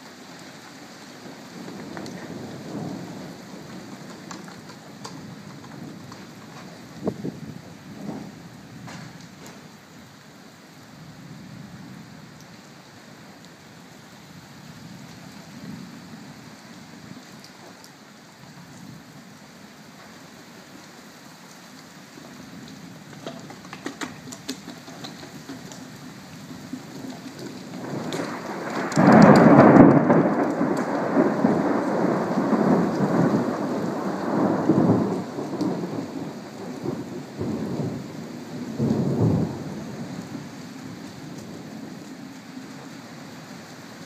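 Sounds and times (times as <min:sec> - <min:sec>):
steady rain: 0:00.0 - 0:44.0
thunder clap and rolling rumble: 0:01.2 - 0:09.8, 0:22.4 - 0:43.3.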